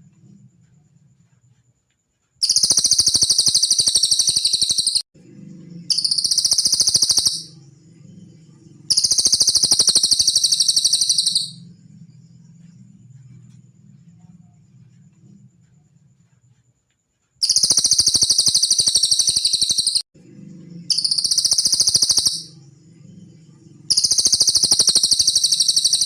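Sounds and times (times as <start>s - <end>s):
bird high-pitched trilling: 2.4s - 5.0s, 5.9s - 7.6s, 8.9s - 11.6s, 17.4s - 20.0s, 20.9s - 22.6s, 23.9s - 26.0s.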